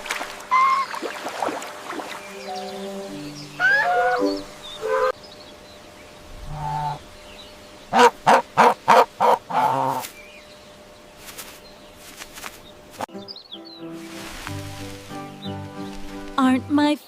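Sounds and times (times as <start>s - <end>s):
turkey gobbling: 3.6s - 5.2s, 7.9s - 10.0s.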